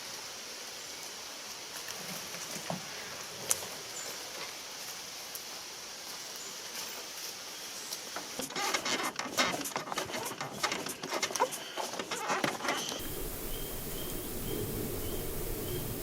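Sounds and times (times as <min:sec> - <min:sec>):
soft steady hiss: 0:00.0 - 0:08.5, 0:13.0 - 0:16.0
rustling and clicking: 0:08.2 - 0:16.0.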